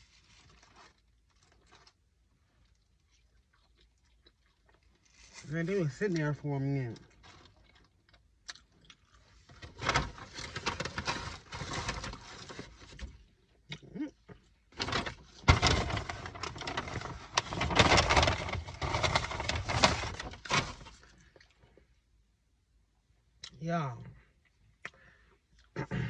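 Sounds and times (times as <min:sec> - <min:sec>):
food packaging crinkling: 0:00.0 - 0:02.0, 0:06.9 - 0:13.3, 0:14.8 - 0:21.6.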